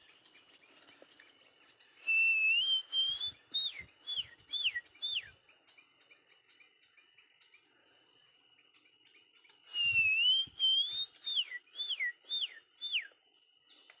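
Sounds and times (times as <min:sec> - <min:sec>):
high insect drone: 0:00.0 - 0:14.0
bird whistling: 0:02.0 - 0:05.4, 0:09.7 - 0:13.1.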